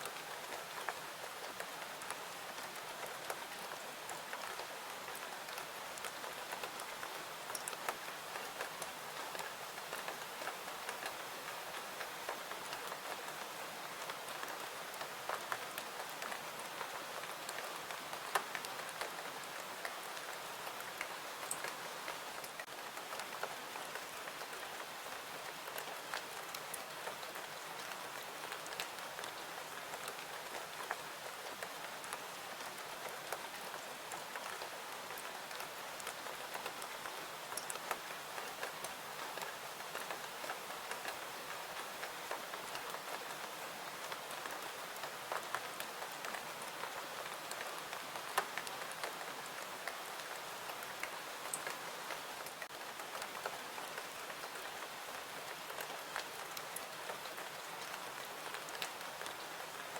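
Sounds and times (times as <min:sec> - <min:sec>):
clicks of raindrops: 0:44.0 - 0:59.9.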